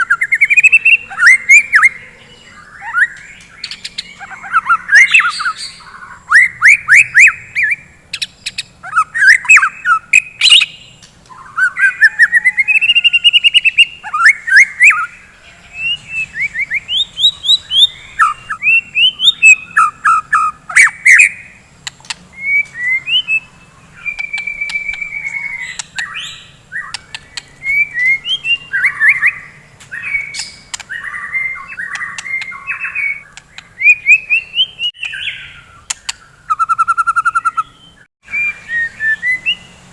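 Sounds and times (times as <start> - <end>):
bird chattering squawks: 0.0 - 39.7
songbird whistling and trilling: 0.0 - 39.9
sharp clicking bird notes: 20.8 - 23.2, 24.0 - 37.7.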